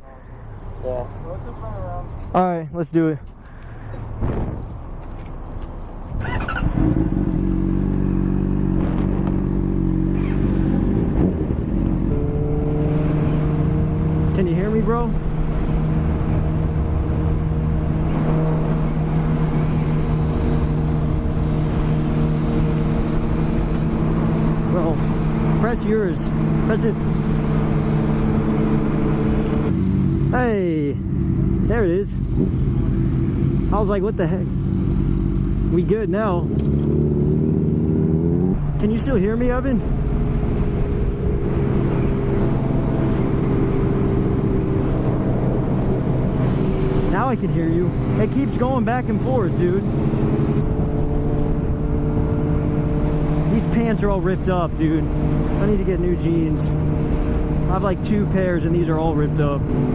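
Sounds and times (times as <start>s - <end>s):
wind noise on microphone: 4.1s - 4.8s, 8.6s - 14.3s
motorcycle engine cruising: 4.2s - 59.9s
wind rumble on microphone: 8.6s - 25.6s.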